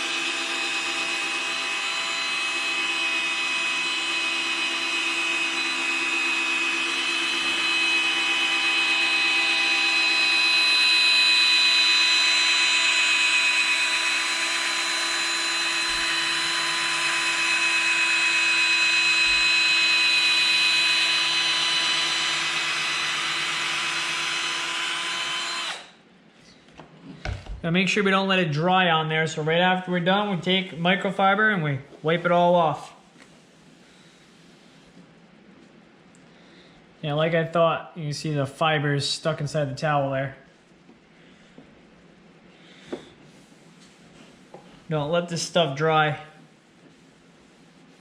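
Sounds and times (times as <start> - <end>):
drill whining: 0.0 - 26.0.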